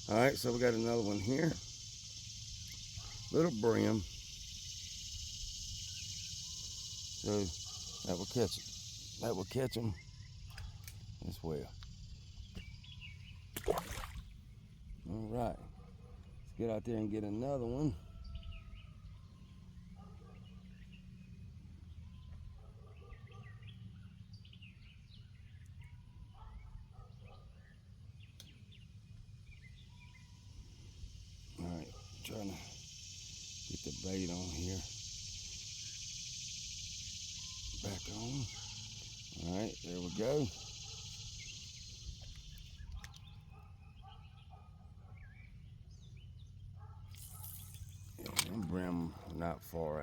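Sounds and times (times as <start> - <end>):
high insect trill: 0.0 - 27.0, 27.8 - 44.6, 45.3 - 50.0
small birds chirping: 0.0 - 50.0.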